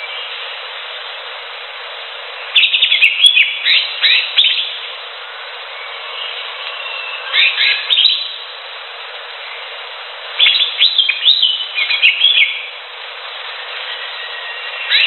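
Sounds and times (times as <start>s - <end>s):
steady hiss: 0.0s - 15.0s
bird chirping and whistling: 2.6s - 4.8s, 5.8s - 8.4s, 10.4s - 12.7s, 13.7s - 15.0s.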